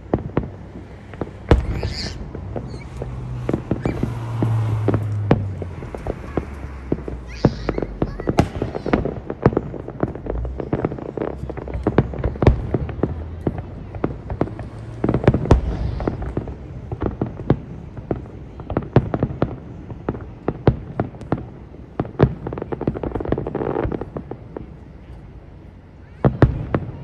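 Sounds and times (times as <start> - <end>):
fireworks bangs and pops: 0.0 - 27.0
low rumble: 0.7 - 8.0.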